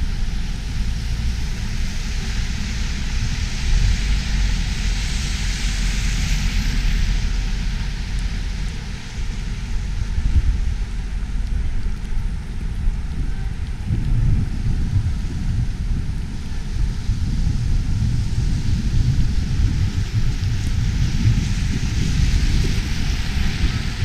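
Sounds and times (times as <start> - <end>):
broad rushing noise: 0.0 - 24.0
wind buffeting microphone: 0.0 - 24.0.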